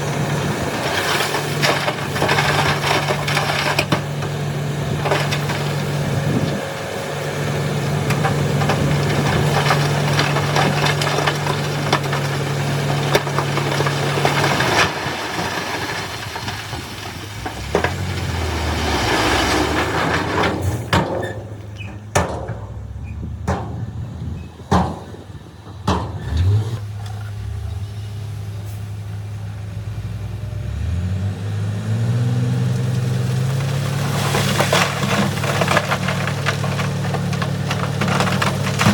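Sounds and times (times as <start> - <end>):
diesel engine revving: 0.0 - 38.9
sharp knocks and clanks: 19.7 - 26.6.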